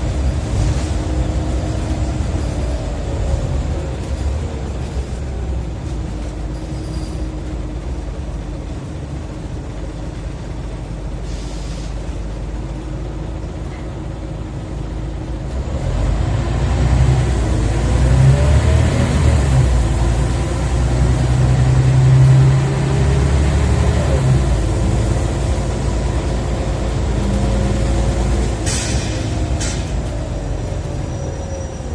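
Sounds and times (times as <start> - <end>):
bus engine revving: 0.0 - 6.6, 7.4 - 31.9
brief hiss: 11.2 - 12.0, 28.6 - 29.9.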